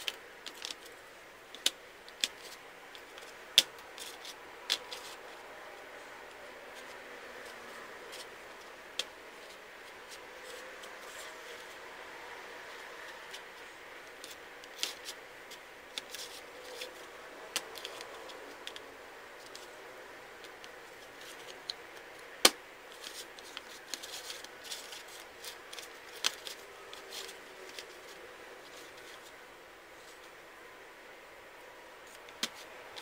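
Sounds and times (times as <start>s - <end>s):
wooden puzzle pieces clicking: 1.5s - 5.2s.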